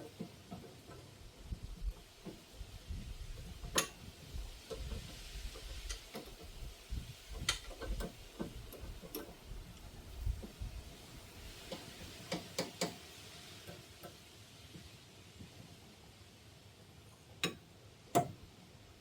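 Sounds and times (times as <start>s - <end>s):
hand tools clicking and knocking: 3.4s - 6.7s, 7.3s - 9.4s, 11.5s - 13.0s, 17.4s - 18.4s.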